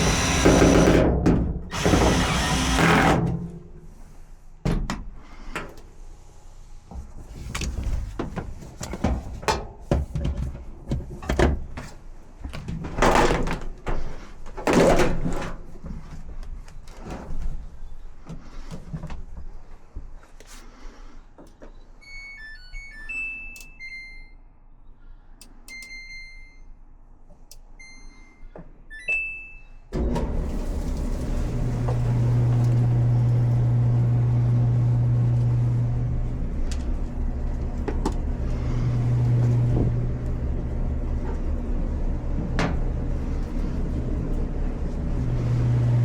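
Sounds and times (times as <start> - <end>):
dryer running with low hum: 0.0 - 20.3, 29.2 - 46.0
short electronic beeps: 22.0 - 24.5.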